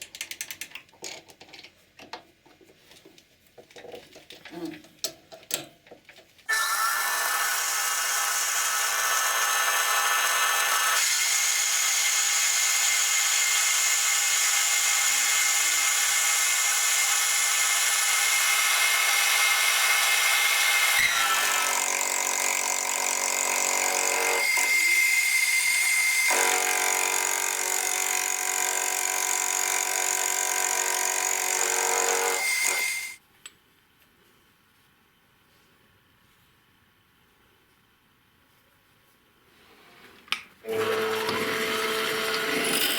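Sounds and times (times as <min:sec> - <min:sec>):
electric power tool running: 0:06.5 - 0:33.2, 0:40.7 - 0:42.9.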